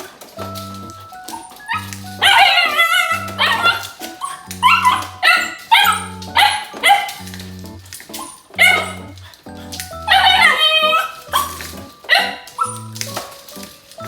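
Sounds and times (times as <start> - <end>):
puppy yelping and whining: 1.0 - 7.3, 7.9 - 13.0
background music with bass: 4.5 - 6.6, 7.2 - 8.0, 8.6 - 10.7, 11.3 - 11.9.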